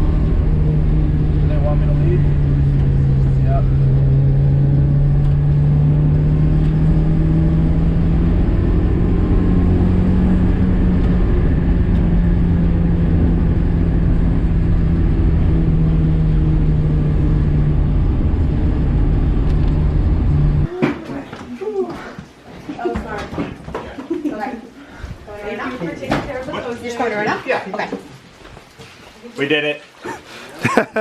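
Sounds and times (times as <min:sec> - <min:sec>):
car engine running hard: 0:00.0 - 0:20.7
road noise rumble: 0:00.0 - 0:20.8.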